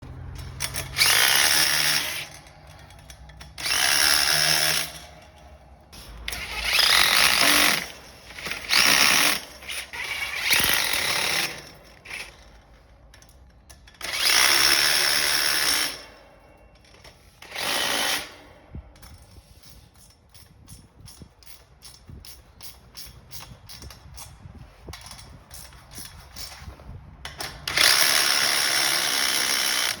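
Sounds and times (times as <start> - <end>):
impact driver running in bursts: 0.6 - 2.4, 3.6 - 5.2, 6.3 - 11.8, 14.0 - 16.1, 27.6 - 30.0.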